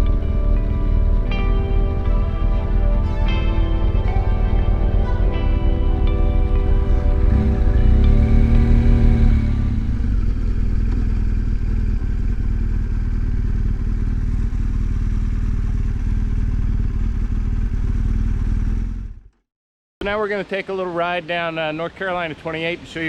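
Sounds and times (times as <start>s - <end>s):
background music: 0.0s - 10.2s
wind and road noise: 0.0s - 19.1s
motorcycle engine running: 0.0s - 19.4s.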